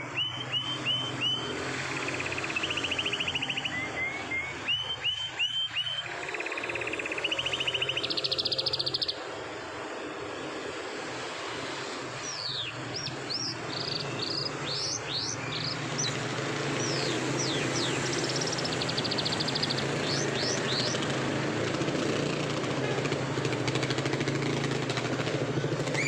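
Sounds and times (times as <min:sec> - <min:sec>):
canary singing: 0:00.0 - 0:09.2, 0:12.2 - 0:21.2
steady background noise: 0:00.0 - 0:26.0.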